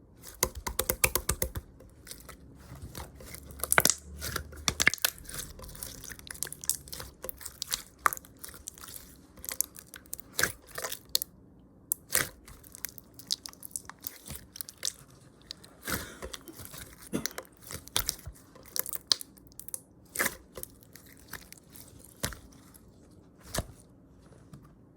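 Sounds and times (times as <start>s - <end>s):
wet chewing clicks and smacks: 3.3s - 11.2s, 17.6s - 19.8s.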